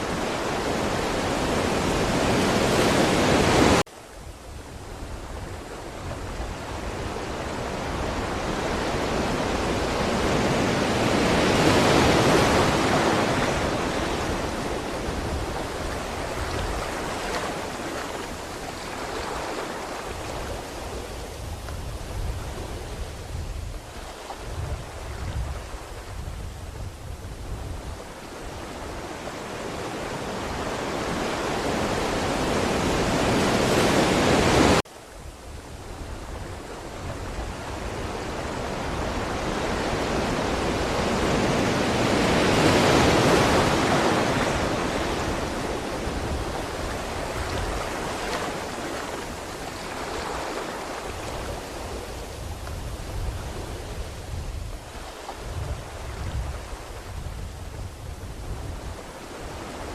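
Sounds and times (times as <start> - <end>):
ocean waves washing ashore: 0.0 - 59.9.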